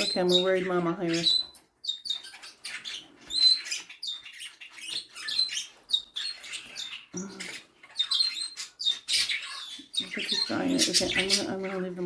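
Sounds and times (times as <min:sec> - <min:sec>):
cockatiels chirping sharply: 0:00.0 - 0:11.8.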